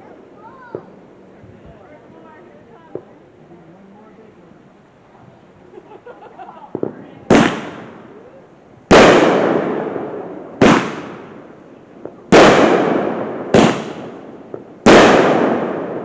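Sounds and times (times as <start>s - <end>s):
fireworks banging: 0.0s - 1.0s, 5.3s - 16.0s.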